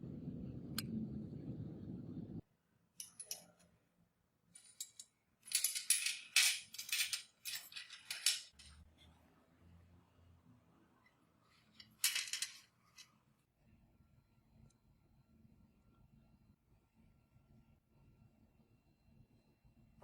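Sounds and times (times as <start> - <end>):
steady low hum: 0.0 - 2.4
small metal parts clicking: 3.0 - 3.6, 4.6 - 8.8, 11.7 - 13.1.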